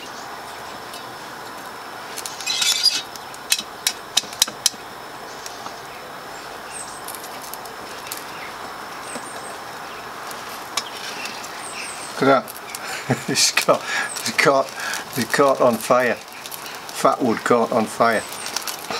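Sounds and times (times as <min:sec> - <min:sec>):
steady hiss: 0:00.0 - 0:18.9
wood scraping: 0:02.2 - 0:03.6.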